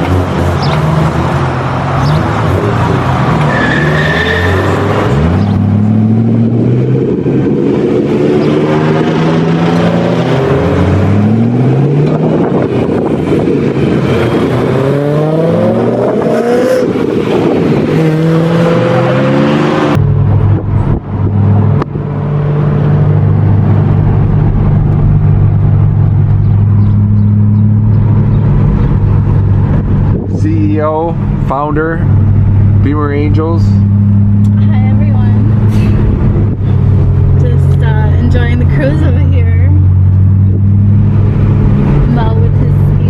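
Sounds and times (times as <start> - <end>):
car engines accelerating hard: 0.0 - 43.0
steady engine drone: 4.3 - 43.0.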